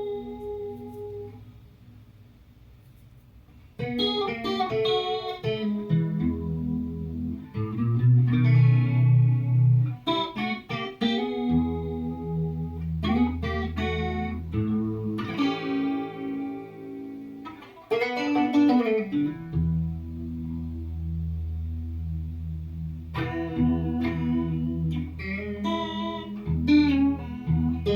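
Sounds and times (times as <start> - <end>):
electric guitar with chorus effect: 0.0 - 2.1, 2.9 - 27.9.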